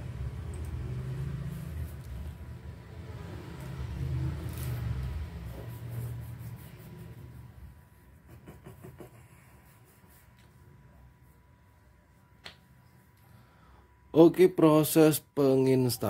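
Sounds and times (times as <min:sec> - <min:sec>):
vehicle engine passing: 0:00.0 - 0:07.9.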